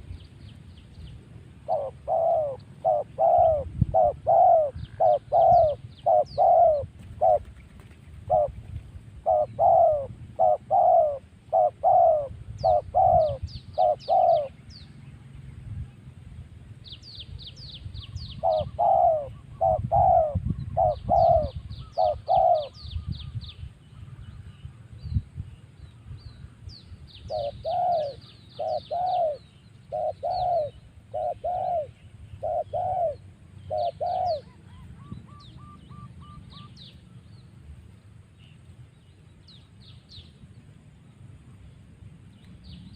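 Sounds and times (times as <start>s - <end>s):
small birds chirping: 0.0s - 16.0s, 16.8s - 42.9s
dove cooing: 1.6s - 14.6s, 18.4s - 22.8s, 27.3s - 36.8s.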